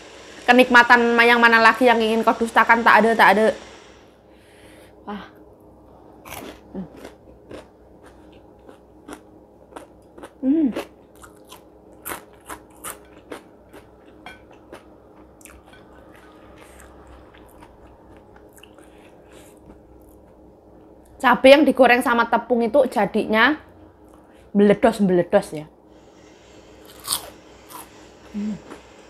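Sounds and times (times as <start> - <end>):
faint steady hum: 0.0 - 29.0
chewing crispy food: 6.2 - 20.9, 26.9 - 29.0
person humming: 10.4 - 10.9, 28.3 - 28.8.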